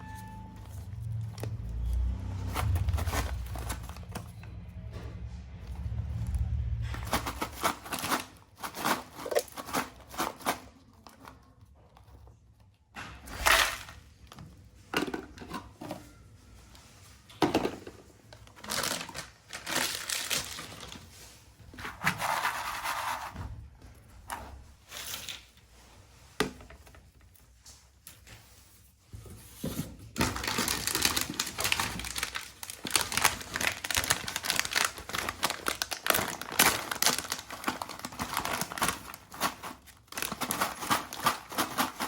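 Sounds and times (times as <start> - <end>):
plastic snack packets crinkling: 0.7 - 4.3, 18.3 - 21.2, 30.1 - 42.0.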